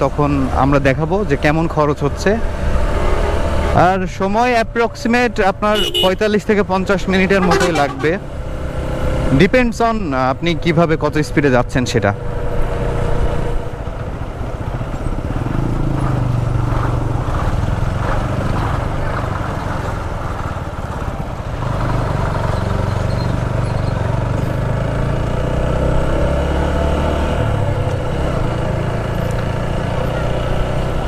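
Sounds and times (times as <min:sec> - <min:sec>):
road and wind noise: 0:00.0 - 0:31.0
motorcycle engine running: 0:07.2 - 0:09.2, 0:12.4 - 0:26.0.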